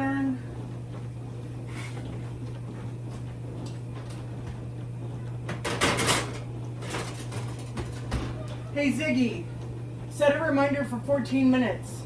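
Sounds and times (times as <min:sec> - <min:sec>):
clattering and rustling: 0:05.5 - 0:08.7.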